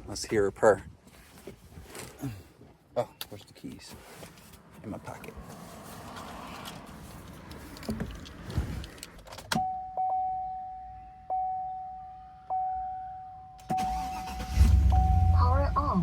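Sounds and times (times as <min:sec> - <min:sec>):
dashboard warning chime: 0:09.6 - 0:16.0.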